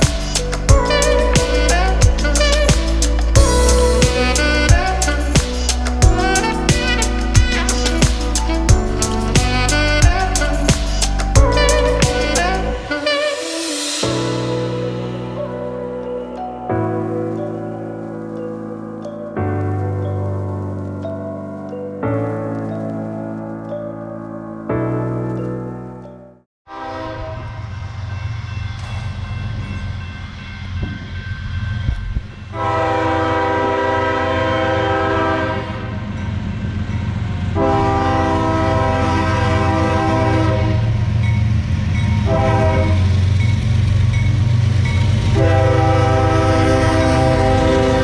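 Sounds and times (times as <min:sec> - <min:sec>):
locomotive air horn: 0:00.0 - 0:15.5, 0:26.7 - 0:27.6, 0:32.5 - 0:36.1, 0:37.6 - 0:41.1, 0:42.2 - 0:43.2, 0:45.3 - 0:48.0
background music: 0:00.0 - 0:26.4, 0:44.8 - 0:48.0.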